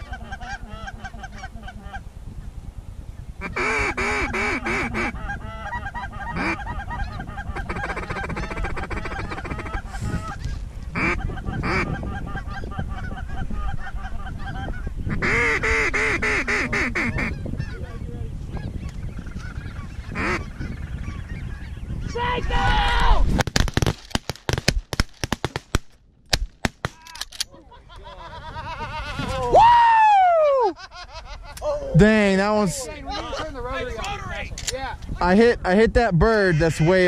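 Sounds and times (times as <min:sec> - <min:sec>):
geese honking and clucking: 0:00.0 - 0:02.1, 0:03.4 - 0:22.7, 0:36.3 - 0:37.0.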